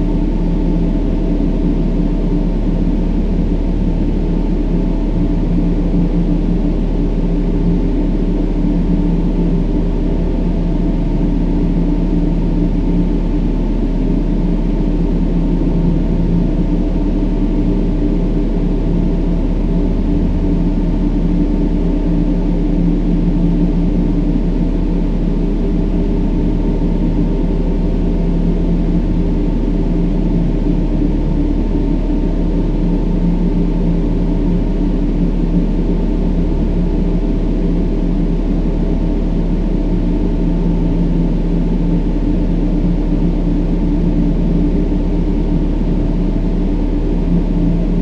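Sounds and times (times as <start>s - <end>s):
low steady humming tones: 0.0s - 48.0s
deep rumbling hiss: 17.0s - 25.6s.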